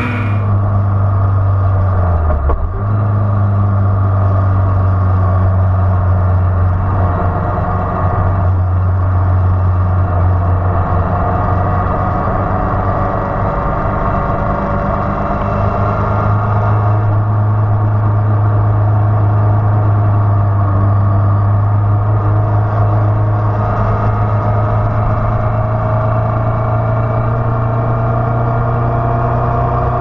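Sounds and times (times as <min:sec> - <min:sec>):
motorcycle engine running: 0:00.0 - 0:00.5.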